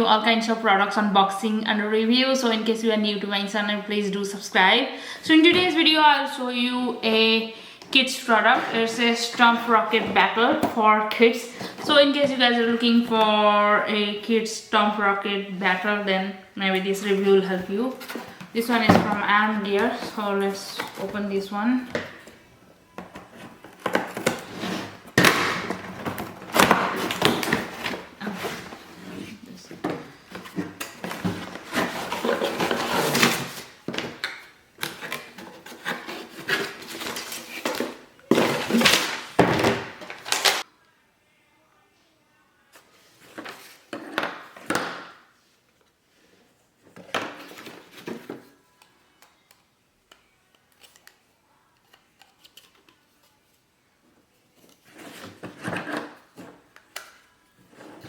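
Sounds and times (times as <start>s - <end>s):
packaging rustling: 34.9s - 40.6s.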